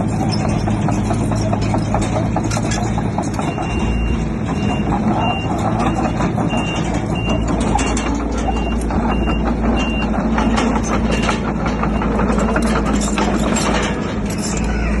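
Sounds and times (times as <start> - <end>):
diesel construction machine running: 0.0 - 15.0
metallic clanks: 0.0 - 15.0
reversing alarm beeps: 3.4 - 12.8.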